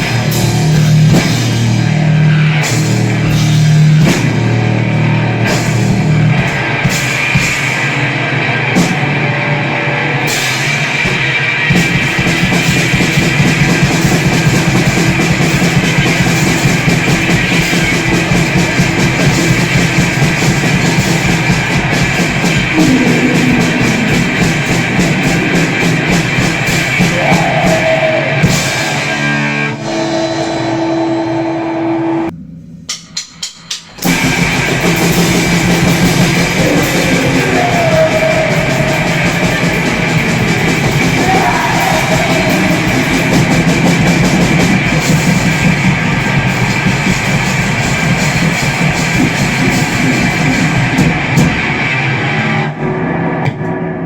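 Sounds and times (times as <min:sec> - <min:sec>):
fast drumming: 0:00.0 - 0:09.3, 0:10.2 - 0:29.1, 0:32.9 - 0:52.0
distorted electric guitar: 0:00.0 - 0:32.5, 0:34.0 - 0:54.0.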